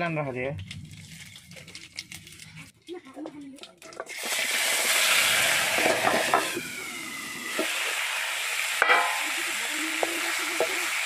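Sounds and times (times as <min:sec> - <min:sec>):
hot oil sizzling in a wok: 0:03.9 - 0:11.0.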